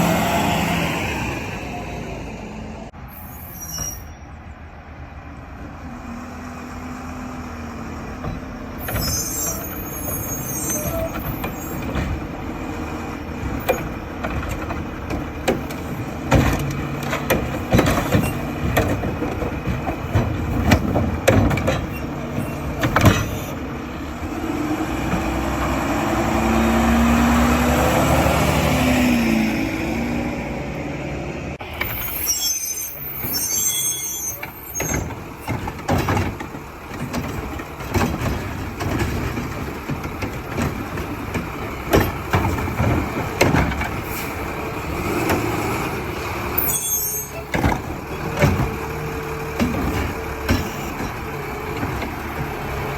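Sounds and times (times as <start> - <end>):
metal clanks and bangs: 13.3 - 23.6, 34.4 - 44.1
engine revving: 24.2 - 30.7
air brakes hissing: 31.7 - 35.0
diesel engine running: 34.2 - 52.9.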